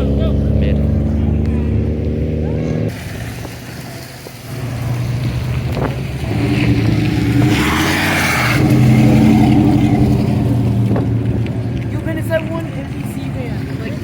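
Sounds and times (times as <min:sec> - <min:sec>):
car engine running loudly: 0:00.0 - 0:14.0
hissing rush: 0:02.6 - 0:11.7.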